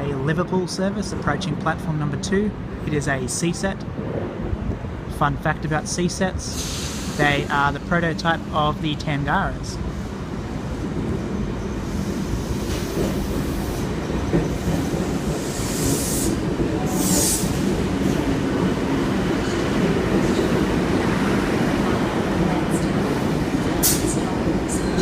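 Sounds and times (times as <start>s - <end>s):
train wheels rumbling on rails: 5.7s - 25.0s.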